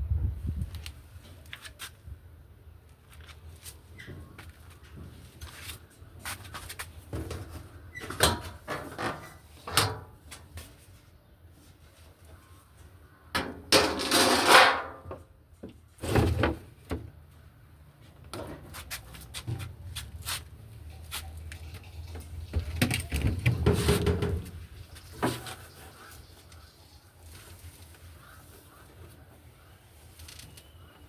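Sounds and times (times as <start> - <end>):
handling clicks knocks and scraping: 18.1 - 26.7.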